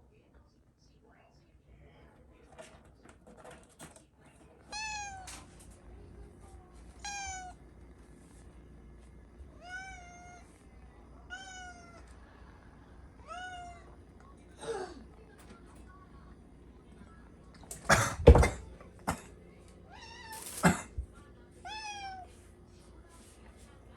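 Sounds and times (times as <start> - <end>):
cat meowing: 4.7 - 5.4, 6.9 - 7.6, 9.5 - 10.6, 11.3 - 12.2, 13.2 - 14.0, 21.6 - 22.3.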